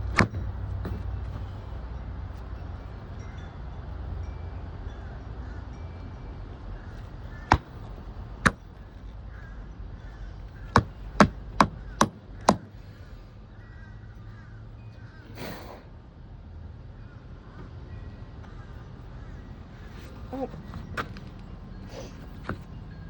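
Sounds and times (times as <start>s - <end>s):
sharp knocks: 7.5s - 7.8s.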